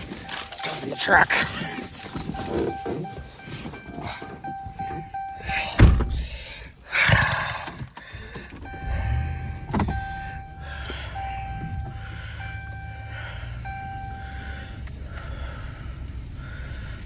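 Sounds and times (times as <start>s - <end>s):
electronic warning chime: 0.0s - 6.2s, 8.6s - 14.7s
engine rumble: 0.0s - 17.0s
truck door thump: 5.6s - 6.2s.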